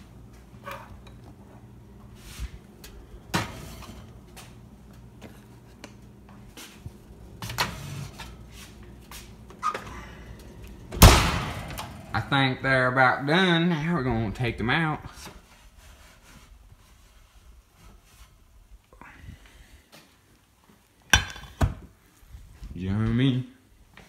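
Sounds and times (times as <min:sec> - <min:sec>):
low steady hum: 0:00.0 - 0:15.1
kitchen knocks and clanks: 0:21.1 - 0:21.8.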